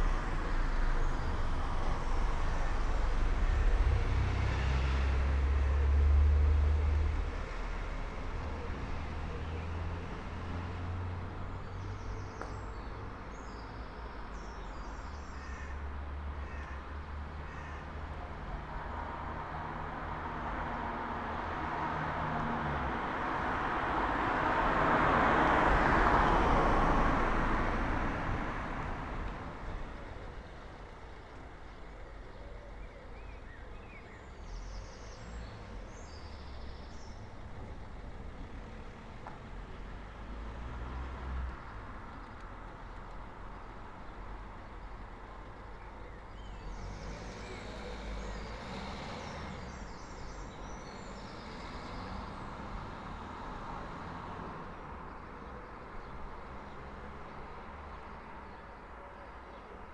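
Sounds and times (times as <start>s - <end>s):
car passing by: 0.0s - 12.5s, 18.7s - 30.0s, 39.8s - 41.9s, 46.6s - 55.4s.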